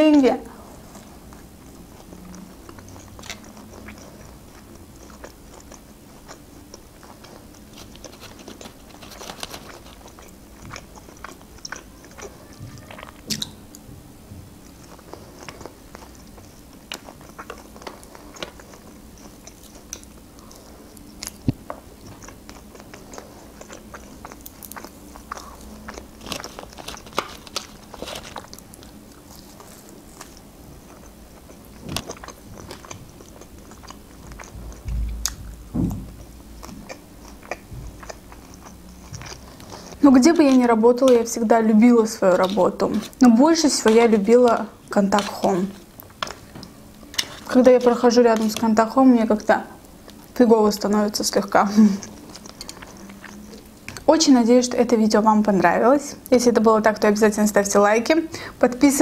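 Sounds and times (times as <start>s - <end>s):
chewing and biting meat: 0.7s - 13.9s, 14.5s - 54.1s.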